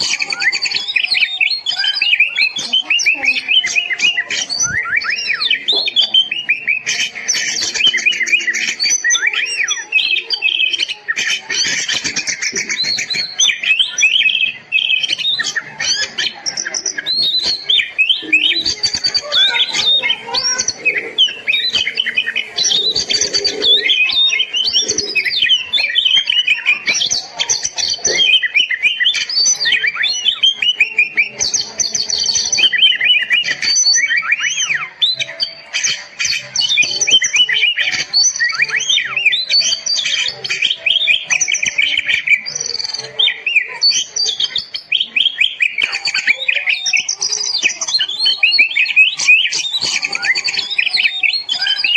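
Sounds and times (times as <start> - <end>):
songbird singing whistles and trills: 0.0 - 51.9.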